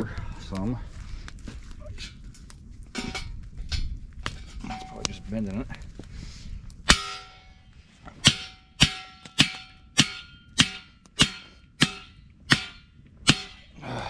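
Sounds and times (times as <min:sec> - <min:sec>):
hammer clanging on steel post: 0:08.2 - 0:13.7.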